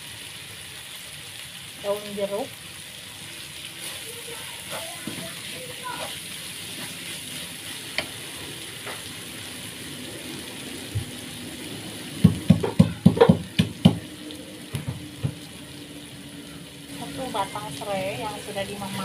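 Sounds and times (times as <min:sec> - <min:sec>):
spice paste sizzling in pan: 0:00.0 - 0:19.0
utensil knocking against pan: 0:12.2 - 0:14.0.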